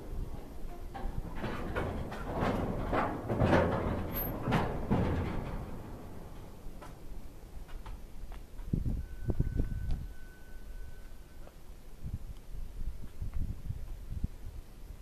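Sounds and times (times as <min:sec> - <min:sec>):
train couplers creaking and clunking: 0:00.0 - 0:11.6.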